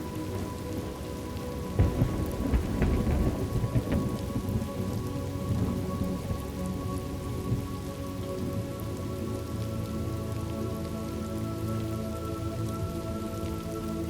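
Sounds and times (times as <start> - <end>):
crackles: 0.0 - 14.0
steady rain falling: 0.0 - 14.0
thunder rumble: 1.6 - 7.8.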